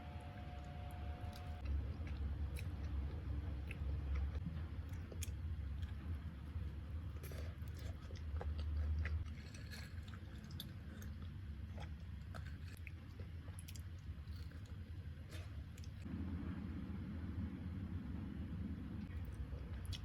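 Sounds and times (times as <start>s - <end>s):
low hum: 0.0s - 20.0s
person chewing food: 1.3s - 16.1s.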